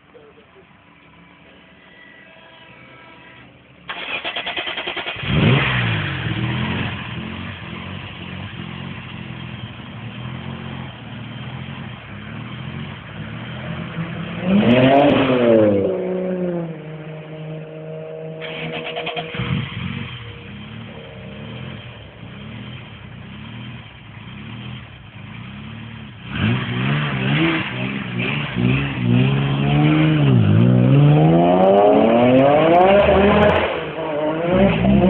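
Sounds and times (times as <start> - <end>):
car engine idling and revving: 0.0 - 35.0
starter cranking engine: 3.9 - 5.7.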